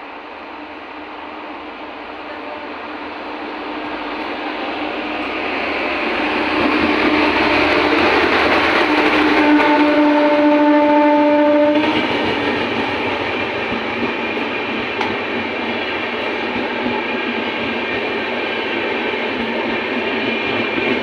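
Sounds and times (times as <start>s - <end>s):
electric locomotive rumbling: 0.0s - 21.0s
train horn: 8.9s - 12.2s.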